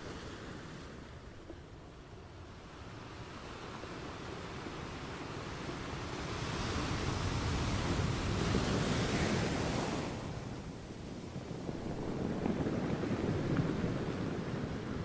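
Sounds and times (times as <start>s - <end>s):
ocean waves crashing on rocks: 4.4s - 15.0s.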